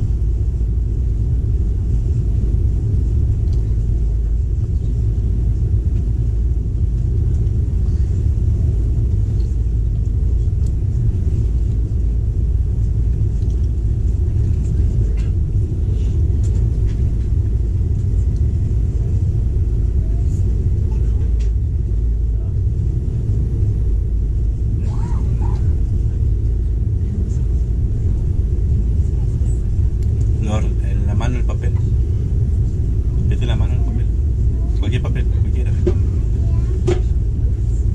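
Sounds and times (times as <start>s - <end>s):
passenger train rumbling: 0.0s - 37.9s
light ticks and rattles: 12.7s - 19.2s, 28.9s - 30.6s.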